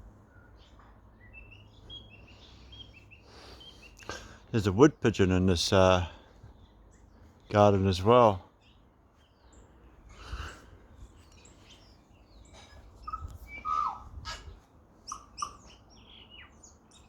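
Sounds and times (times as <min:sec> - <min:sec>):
bird singing with clicks and whistles: 0:11.3 - 0:14.0, 0:15.0 - 0:17.0.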